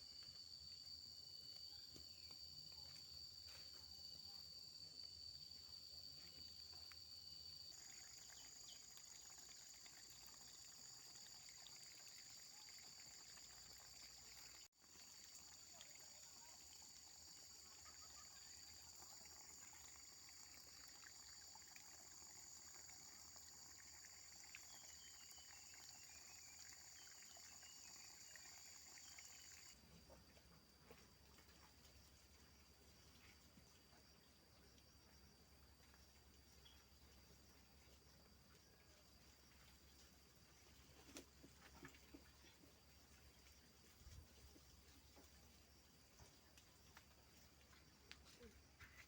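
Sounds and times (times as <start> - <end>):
insect chorus trilling: 0.0 - 30.1.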